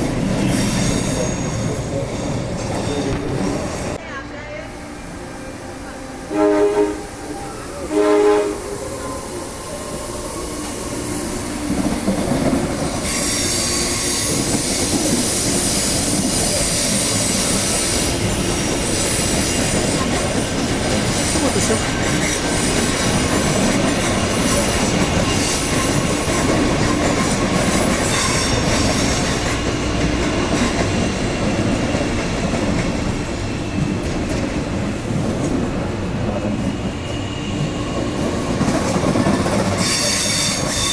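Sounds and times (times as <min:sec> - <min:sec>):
train rail noise: 0:00.0 - 0:40.9
train horn blast: 0:04.5 - 0:09.3
train wheels squealing: 0:12.8 - 0:20.3, 0:39.5 - 0:40.9.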